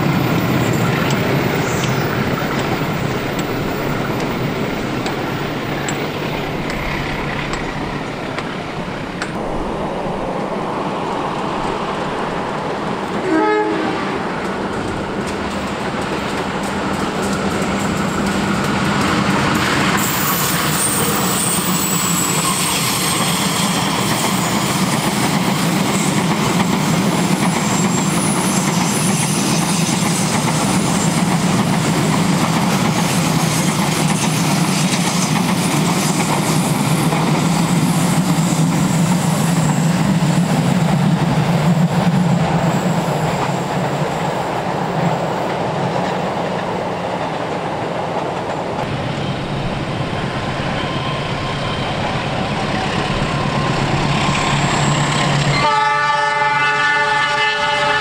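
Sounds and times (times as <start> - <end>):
train rumble and rail noise: 0.0 - 58.0
train horn blast: 13.2 - 14.2, 55.2 - 58.0.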